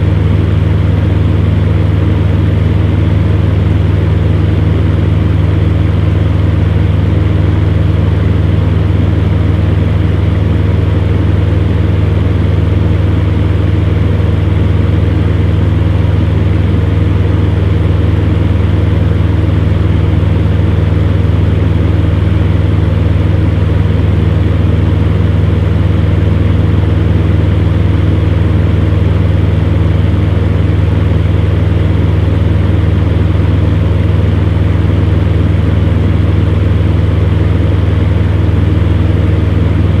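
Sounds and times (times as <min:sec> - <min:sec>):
fan heater running: 0:00.0 - 0:40.0.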